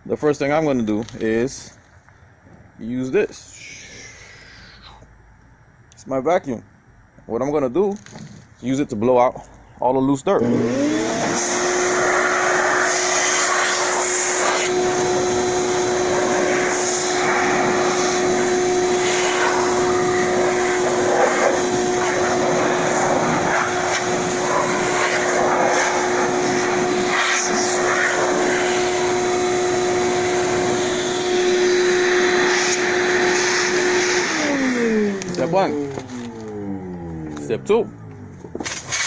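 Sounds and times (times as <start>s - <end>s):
vacuum motor whining: 10.4s - 39.0s
rushing air blast: 11.2s - 35.5s, 38.6s - 39.0s.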